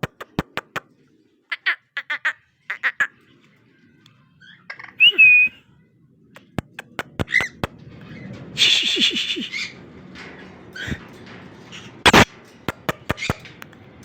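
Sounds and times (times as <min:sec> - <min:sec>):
cockatiel whistle: 0:05.0 - 0:05.7.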